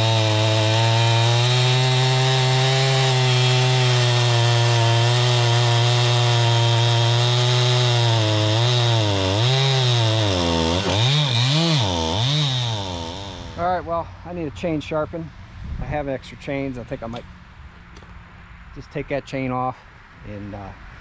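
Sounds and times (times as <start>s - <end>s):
chainsaw cutting a log: 0.0s - 13.8s.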